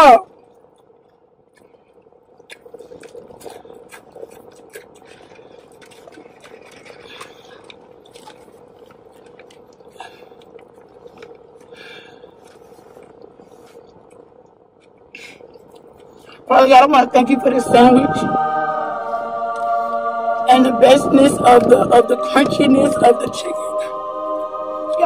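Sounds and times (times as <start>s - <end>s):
wet chewing and smacking: 0.4s - 16.5s.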